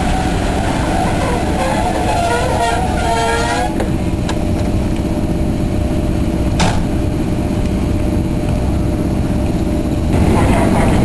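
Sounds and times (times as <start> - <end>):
train hum and rumble: 0.0 - 11.0.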